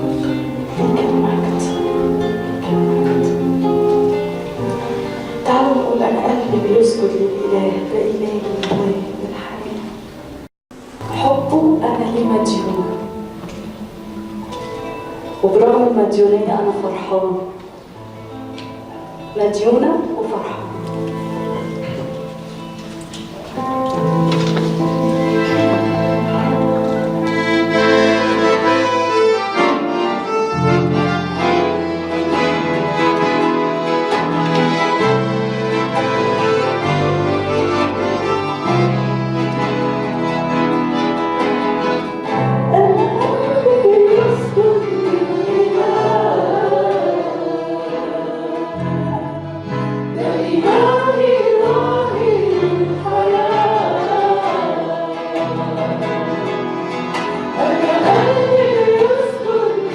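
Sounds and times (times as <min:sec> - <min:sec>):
instrumental worship music: 0:00.0 - 0:59.9
voices singing: 0:42.7 - 0:59.9.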